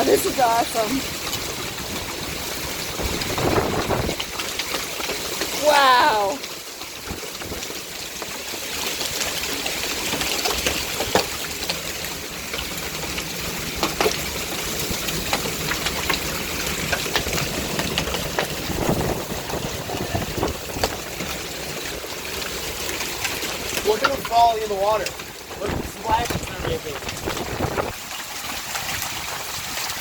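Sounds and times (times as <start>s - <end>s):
hailstones clicking on hard surfaces: 0.0s - 30.0s
heavy rain and hail: 0.0s - 30.0s.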